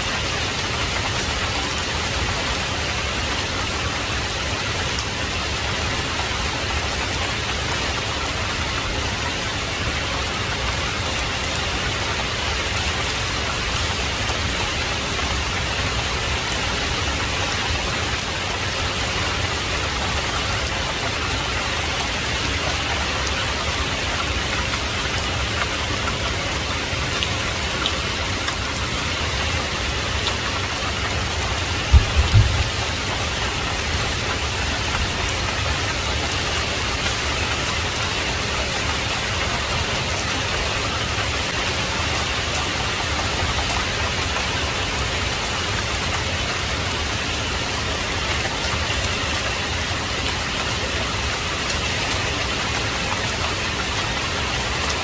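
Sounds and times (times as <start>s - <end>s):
heavy rain falling: 0.0s - 55.0s
low thump: 31.9s - 32.8s.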